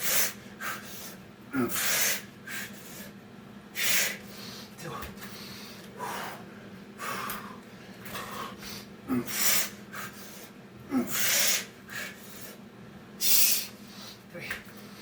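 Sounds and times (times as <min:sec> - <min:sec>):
man breathing hard: 0:00.0 - 0:03.2, 0:03.8 - 0:12.6.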